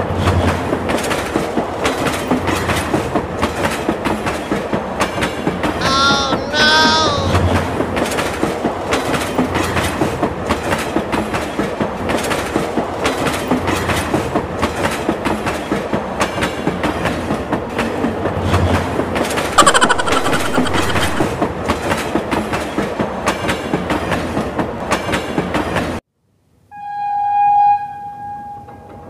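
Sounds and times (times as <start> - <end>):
train wheels clickety-clack: 0.0 - 5.8, 7.4 - 19.6, 21.3 - 26.0
high-pitched sliding sound: 19.6 - 21.3.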